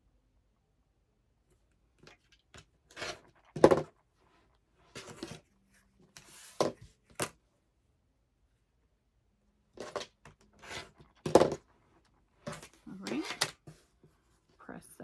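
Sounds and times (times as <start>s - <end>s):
knocks of objects set down: 3.6s - 3.9s, 11.2s - 11.6s.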